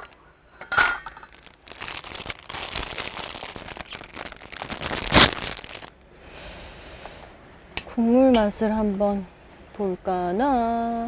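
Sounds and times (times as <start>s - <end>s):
plastic packet crinkling: 1.0s - 5.9s
packet tearing open: 1.2s - 5.9s.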